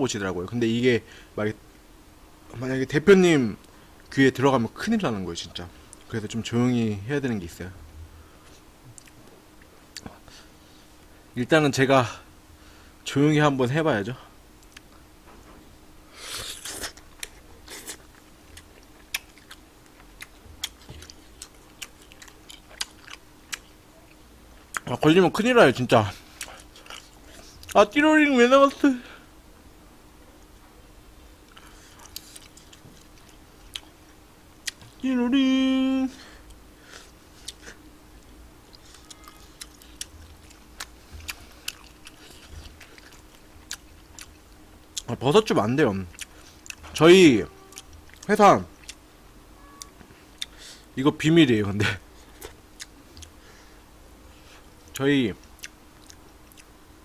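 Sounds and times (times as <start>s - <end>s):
faint steady hum: 0.0s - 57.0s
slurping and chewing: 16.2s - 23.8s, 26.2s - 27.8s, 31.5s - 33.9s, 36.8s - 37.8s, 38.7s - 45.1s.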